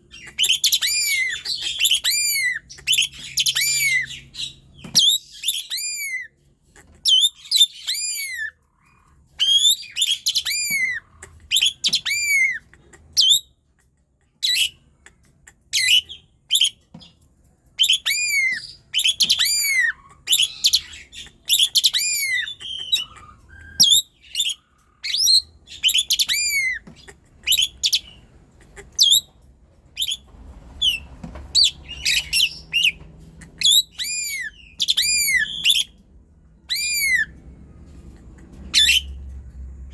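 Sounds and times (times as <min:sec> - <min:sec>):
starling whistling song: 0:00.1 - 0:06.3, 0:07.1 - 0:08.5, 0:09.4 - 0:12.6, 0:13.2 - 0:13.5, 0:15.8 - 0:16.8, 0:17.8 - 0:26.8, 0:27.4 - 0:28.2, 0:29.0 - 0:29.3, 0:30.0 - 0:33.0, 0:33.6 - 0:36.0, 0:36.6 - 0:37.4, 0:38.7 - 0:39.3.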